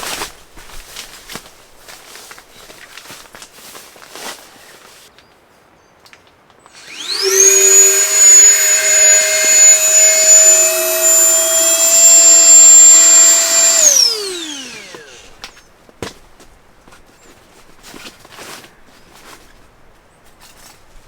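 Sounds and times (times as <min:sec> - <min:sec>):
high-speed electric motor whine: 0:06.8 - 0:15.6.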